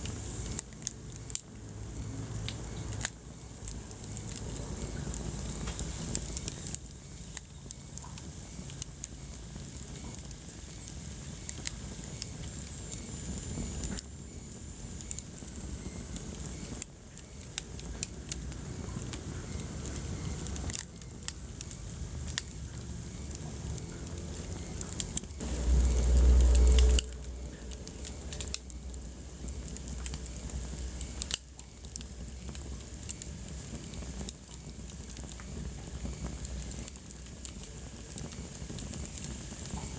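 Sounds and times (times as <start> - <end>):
wood fire crackling and popping: 0.0 - 39.9
loud low rumble: 25.4 - 30.6.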